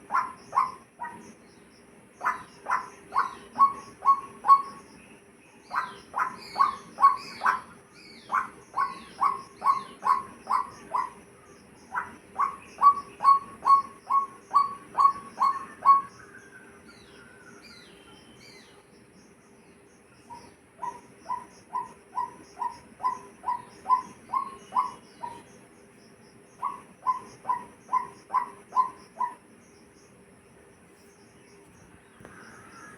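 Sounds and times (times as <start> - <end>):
bird calling repeated notes: 0.0 - 1.3, 2.2 - 5.0, 5.7 - 11.2, 11.9 - 16.4, 20.2 - 25.5, 26.6 - 29.4
faint high bird chirps: 0.0 - 30.2.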